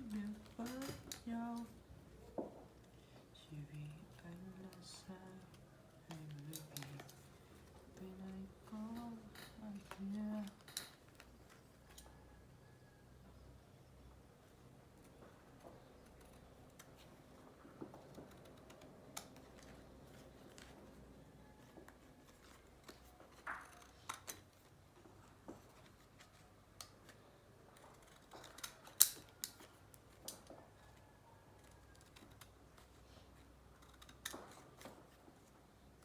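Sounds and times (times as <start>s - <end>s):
scissors cutting paper: 0.0s - 1.8s, 3.8s - 11.3s, 16.0s - 24.8s, 25.5s - 36.0s.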